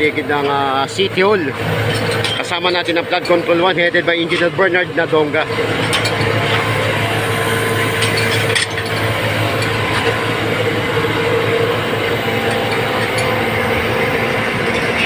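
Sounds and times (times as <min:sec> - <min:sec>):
vacuum truck engine drone: 0:00.0 - 0:15.0.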